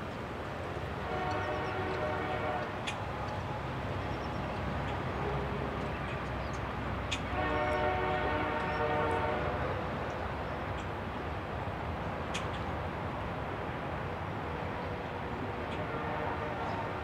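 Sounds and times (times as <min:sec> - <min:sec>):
train wheels rumbling on rail: 0:00.0 - 0:17.0
distant locomotive horn: 0:00.8 - 0:03.7, 0:05.1 - 0:05.9, 0:07.2 - 0:10.0, 0:14.4 - 0:17.0.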